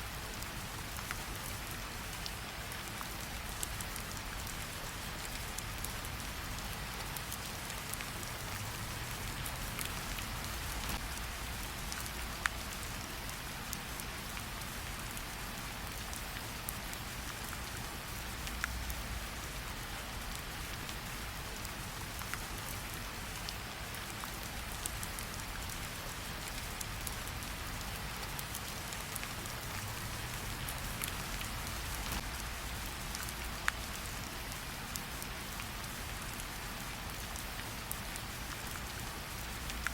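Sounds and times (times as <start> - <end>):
steady rain falling: 0.0 - 39.9
campfire crackling: 23.9 - 35.6.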